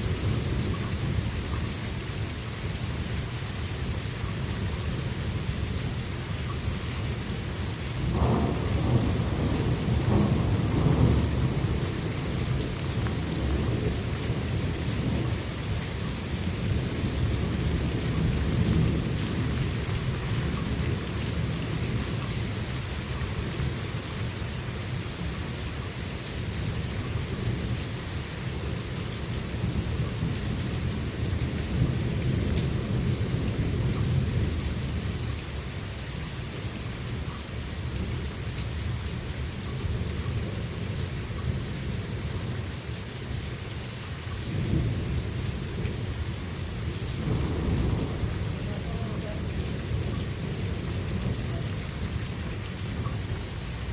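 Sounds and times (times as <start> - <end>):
steady rain: 0.0 - 53.9
low rolling thunder: 7.2 - 22.2, 28.6 - 35.2, 44.5 - 53.9.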